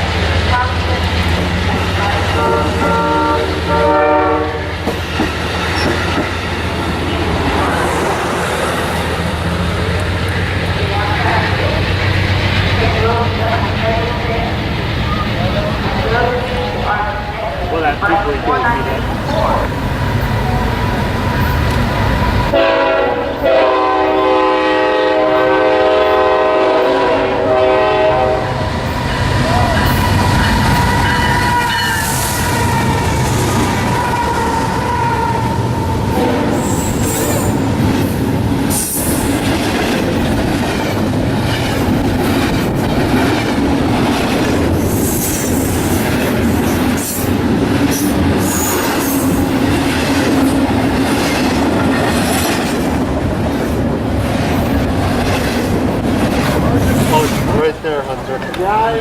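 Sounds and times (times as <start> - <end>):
train rumbling: 0.0 - 59.0
train air horn: 2.0 - 4.8, 22.5 - 28.7, 36.1 - 37.5.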